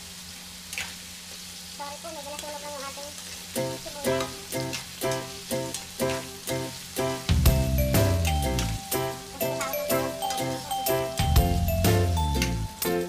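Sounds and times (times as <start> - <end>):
vegetables sizzling in a wok: 0.0 - 13.0
background music with beat: 6.5 - 13.0.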